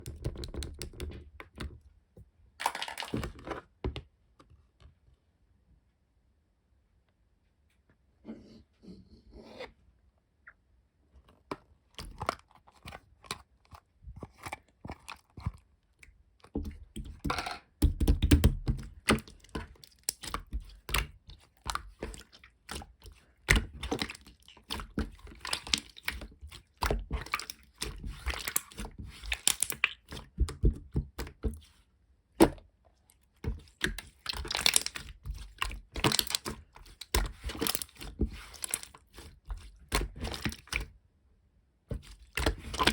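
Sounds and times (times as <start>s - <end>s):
crackling and crunching: 33.1s - 40.8s, 42.0s - 42.9s.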